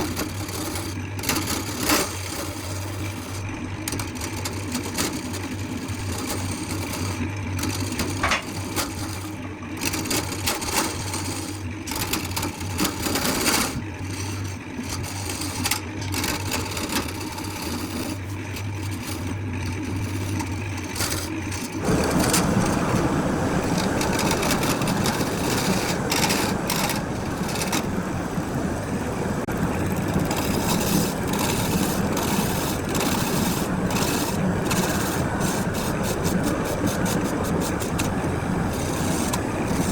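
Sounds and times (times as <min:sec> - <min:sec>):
machinery motor hum: 0:00.0 - 0:39.9
rough machine noise: 0:00.0 - 0:39.9
knocks and clicks: 0:07.7 - 0:09.0.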